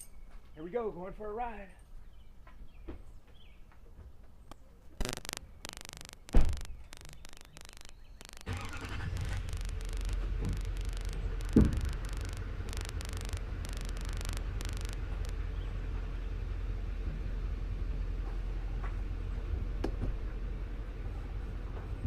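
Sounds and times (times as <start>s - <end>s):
pickup truck engine rumble: 5.8s - 22.0s
sharp thump: 6.3s - 6.7s, 11.5s - 12.0s.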